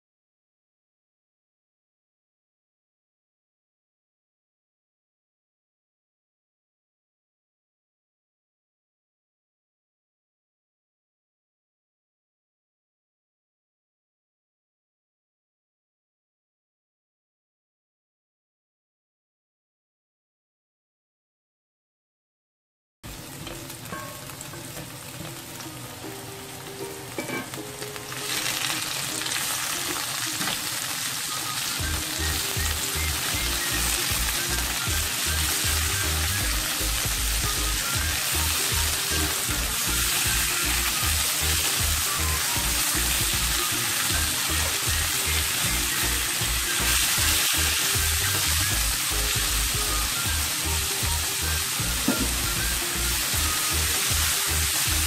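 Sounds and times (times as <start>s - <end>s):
vegetables sizzling in oil: 23.1s - 55.0s.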